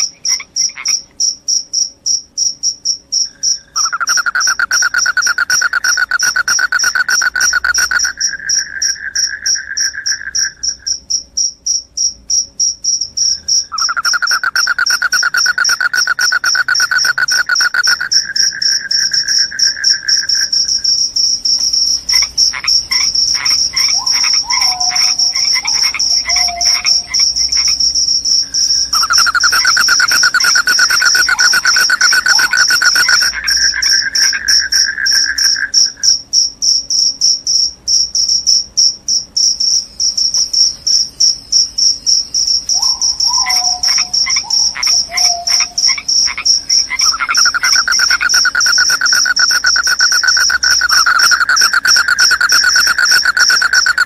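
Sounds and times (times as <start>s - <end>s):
cricket high trill: 0.0s - 54.0s
cricket lower trill: 0.0s - 54.0s.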